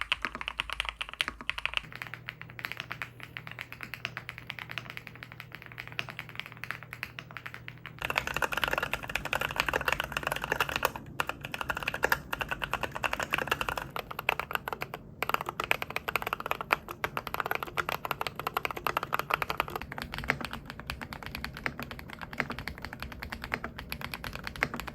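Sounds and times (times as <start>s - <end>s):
mechanical keyboard typing: 0.0s - 24.9s.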